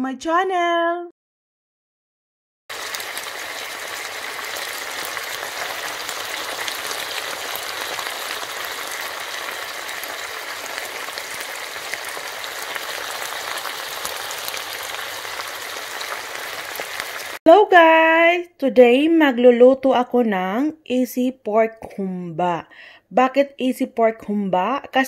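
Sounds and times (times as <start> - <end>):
meat sizzling in sauce: 2.7 - 17.4.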